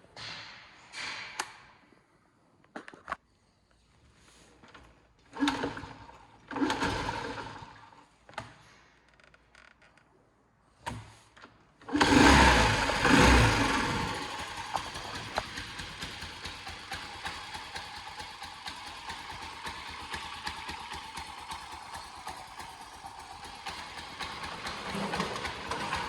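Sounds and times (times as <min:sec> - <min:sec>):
motorcycle engine starting and idling: 0:04.6 - 0:09.9, 0:10.8 - 0:26.0.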